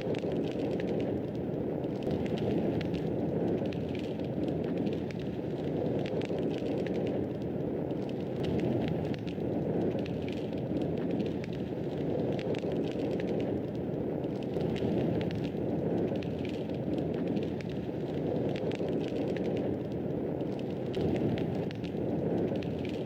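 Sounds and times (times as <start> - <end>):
wood fire crackling in fireplace: 0.0 - 23.0.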